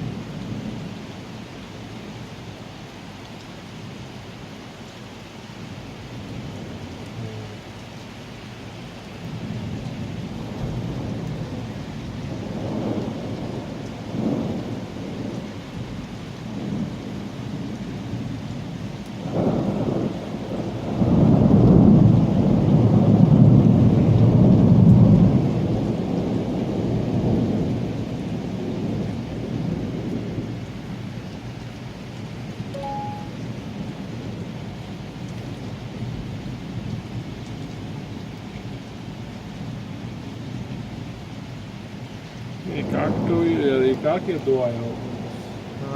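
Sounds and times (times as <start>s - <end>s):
steady rain: 0.0s - 45.9s
thunder rumbling: 19.2s - 30.6s, 42.6s - 45.8s.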